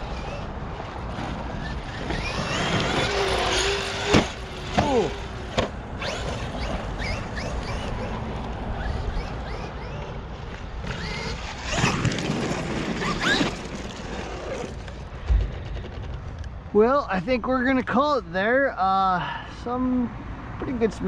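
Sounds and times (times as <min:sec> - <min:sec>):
electric motor whining: 0:00.0 - 0:14.9
tyres on dirt: 0:00.0 - 0:18.2.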